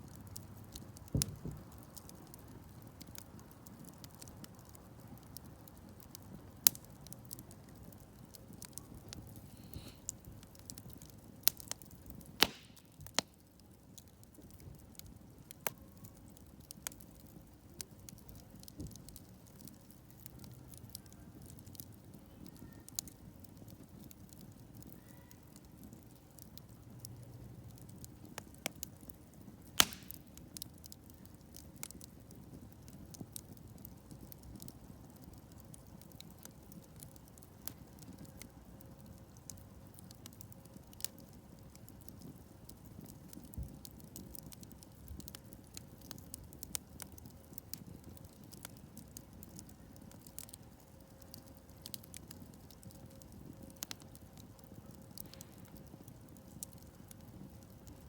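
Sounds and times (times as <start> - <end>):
campfire crackling: 0.0 - 58.0
loud wood snap: 12.4 - 13.3, 29.8 - 30.2.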